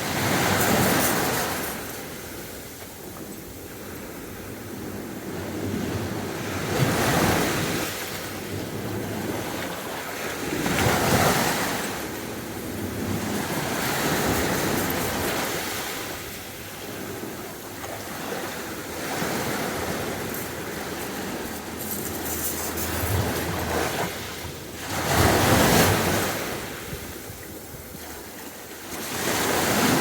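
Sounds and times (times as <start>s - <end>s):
sea waves breaking on beach: 0.0s - 30.0s.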